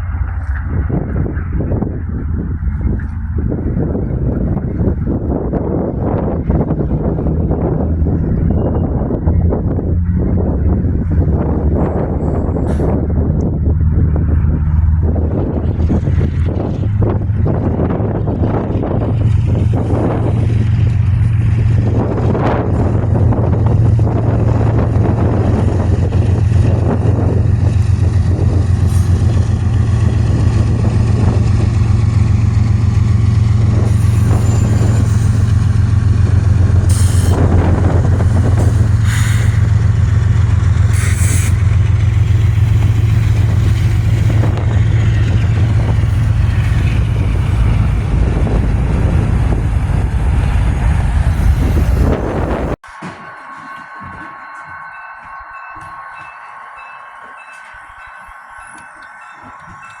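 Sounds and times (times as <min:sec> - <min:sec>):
freight train rumbling past: 0:00.0 - 1:00.0
metallic clanks and squeals: 0:08.2 - 0:09.4, 0:32.8 - 0:48.1, 0:51.3 - 1:00.0.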